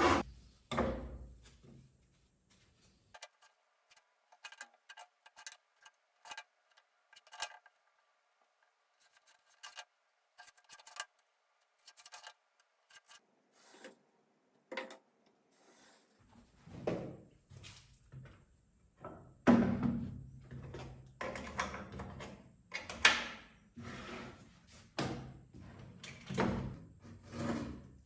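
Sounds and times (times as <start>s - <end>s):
hand tool scraping wood: 0.0s - 0.2s.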